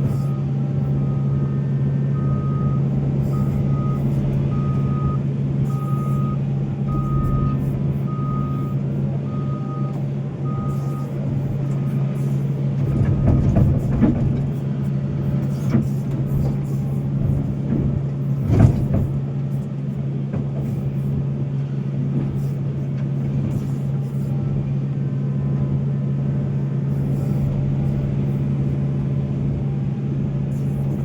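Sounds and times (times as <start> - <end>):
backup alarm beeping: 0.0 - 11.9
excavator diesel engine running: 0.0 - 31.0.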